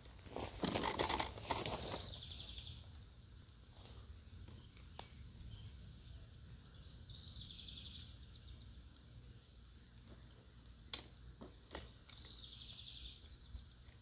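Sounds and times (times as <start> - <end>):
rustling: 0.0 - 2.6.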